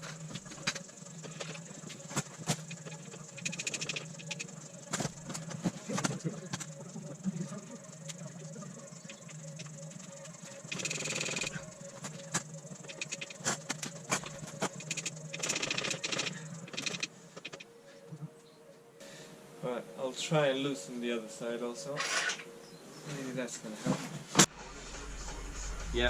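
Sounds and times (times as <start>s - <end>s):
spanner rasping: 0.0s - 17.6s
spanner metal clicks: 2.7s - 4.5s, 12.8s - 17.6s.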